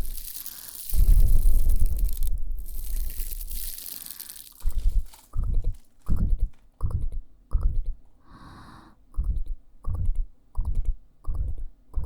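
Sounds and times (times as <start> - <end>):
short hiss: 0.0 - 5.1.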